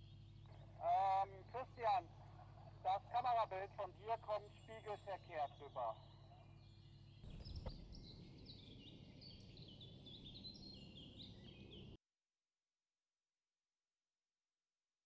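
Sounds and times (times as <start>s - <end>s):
faint outdoor ambience: 0.0s - 12.0s
small songbird singing: 4.4s - 12.0s.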